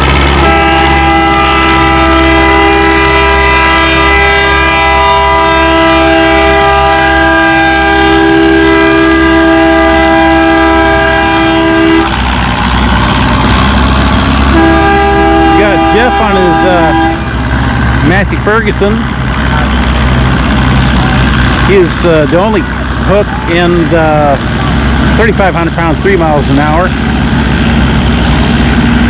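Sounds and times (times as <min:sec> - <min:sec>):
loud multi-note horn: 0:00.0 - 0:12.8, 0:14.4 - 0:19.0
low engine rumble: 0:00.0 - 0:29.0.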